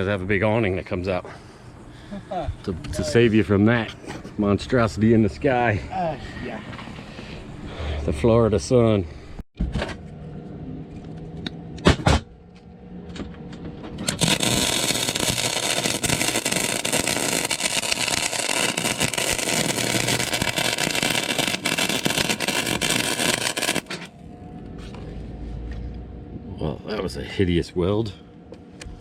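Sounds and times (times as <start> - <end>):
welding arc crackling sizzle: 14.0 - 24.2.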